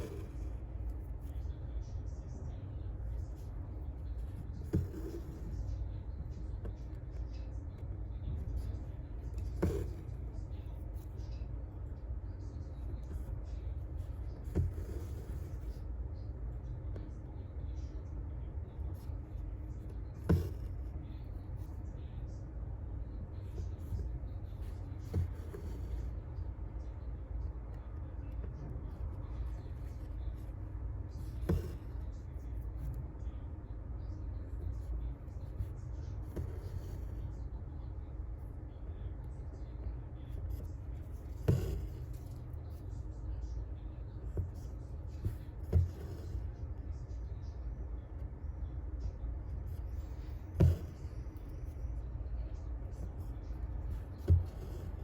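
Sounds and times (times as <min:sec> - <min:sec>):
low room rumble: 0:00.0 - 0:55.0
needle and thread through fabric: 0:18.9 - 0:21.6, 0:40.2 - 0:43.5, 0:49.4 - 0:55.0.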